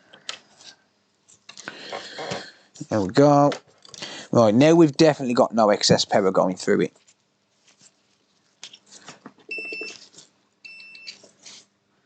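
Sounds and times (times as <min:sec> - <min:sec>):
multimeter beeps: 0:09.5 - 0:10.0, 0:10.6 - 0:11.2.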